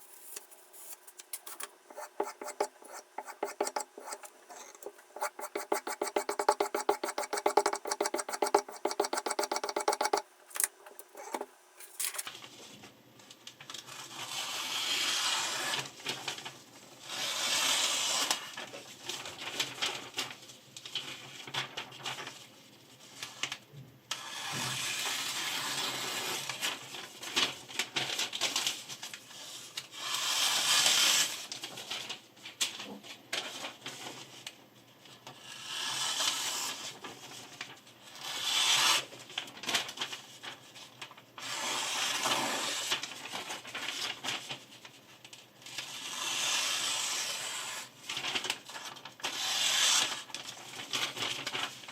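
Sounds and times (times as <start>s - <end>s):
stone scraping knife blade: 0.0s - 12.3s
rapid clicks: 1.2s - 12.0s.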